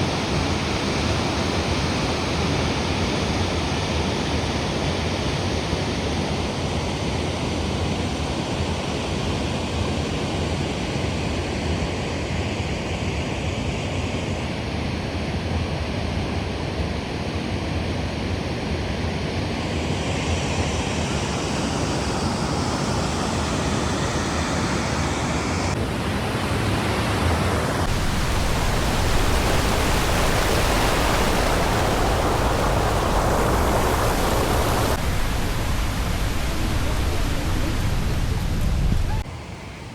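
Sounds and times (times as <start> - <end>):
waterfall rushing: 25.8 - 39.2.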